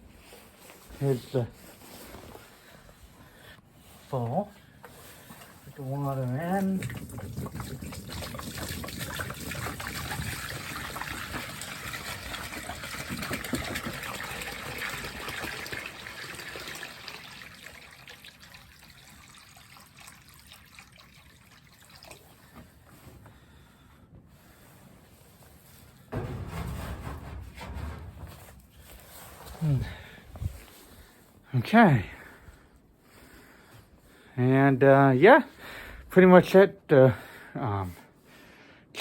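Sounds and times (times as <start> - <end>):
water pouring into bowl: 6.7 - 22.4.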